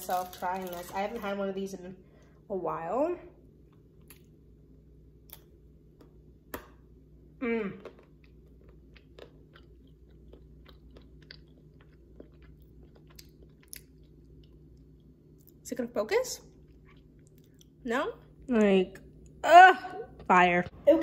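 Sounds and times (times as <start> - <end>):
person humming mm: 7.4 - 7.9.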